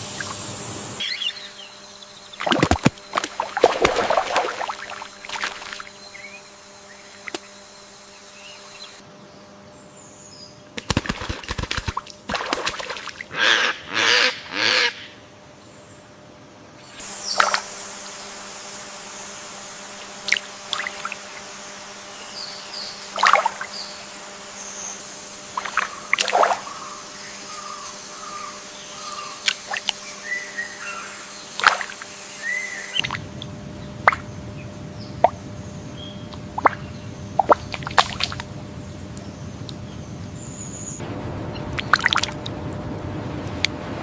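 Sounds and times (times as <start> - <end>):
steady background hiss: 0.0 - 44.0
bird chirps: 1.0 - 3.2, 25.6 - 33.2, 39.2 - 42.0
low rushing water: 25.4 - 27.3, 41.0 - 44.0
water drips and plops: 33.0 - 34.2, 36.6 - 36.8, 41.7 - 42.5.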